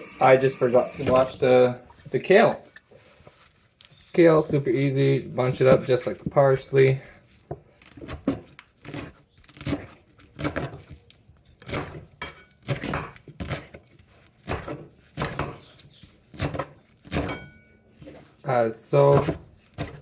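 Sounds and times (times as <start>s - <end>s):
knife chopping on cutting board: 11.6s - 13.8s, 14.4s - 15.7s, 16.3s - 17.4s, 19.1s - 20.0s.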